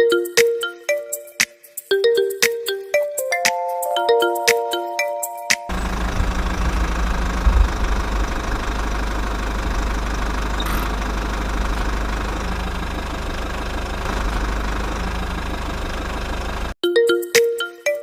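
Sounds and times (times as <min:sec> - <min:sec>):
small engine running: 0:05.7 - 0:16.8.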